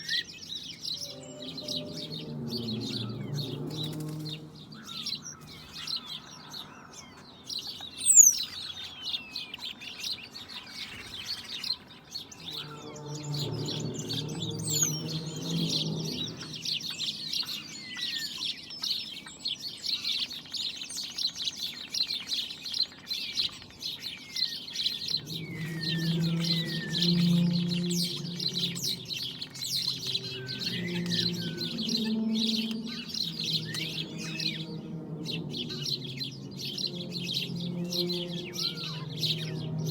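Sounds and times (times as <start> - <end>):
flock of birds chirping: 0.0 - 39.9
low pitched droning: 1.0 - 5.2, 12.4 - 16.9, 25.0 - 39.9.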